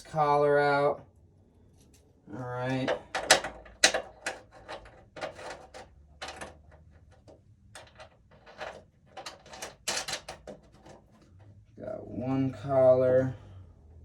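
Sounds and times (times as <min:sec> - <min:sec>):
metal clicks and scrapes: 0:02.8 - 0:11.3.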